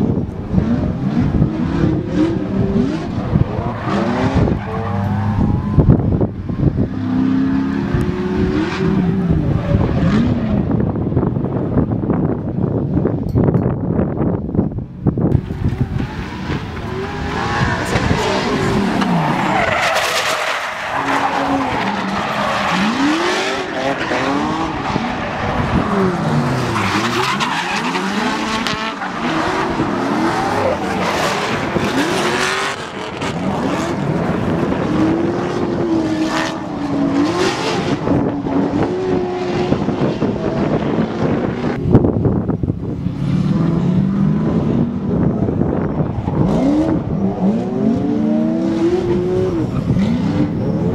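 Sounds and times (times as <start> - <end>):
car engine revving: 0.0 - 11.8, 15.2 - 41.9, 42.7 - 50.9
tires squealing: 0.6 - 10.8, 15.4 - 41.8.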